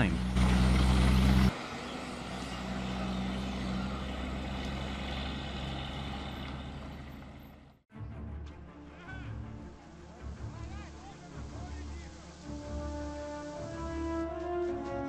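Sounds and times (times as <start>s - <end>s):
heavy truck engine running: 0.0s - 7.8s.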